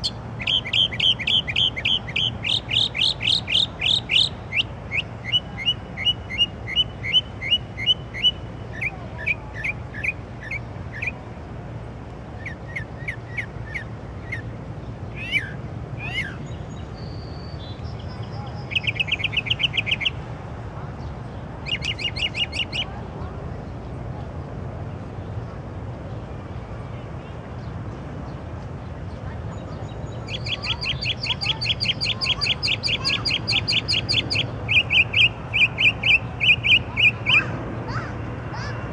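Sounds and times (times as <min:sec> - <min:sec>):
songbird singing: 0:00.0 - 0:11.4, 0:12.3 - 0:24.1, 0:25.0 - 0:38.9.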